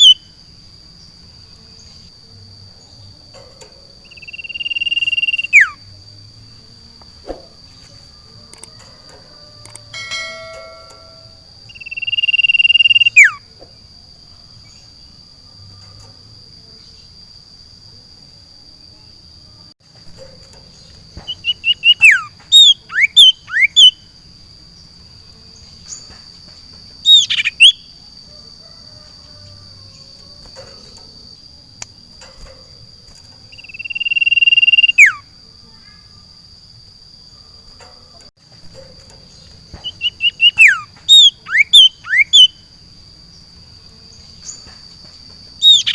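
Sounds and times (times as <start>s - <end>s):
bird whistling song: 0.0s - 0.4s, 2.8s - 5.9s, 10.8s - 13.5s, 20.2s - 24.1s, 27.0s - 28.0s, 33.5s - 35.3s, 38.8s - 42.6s, 45.6s - 45.9s
high insect drone: 0.0s - 45.9s.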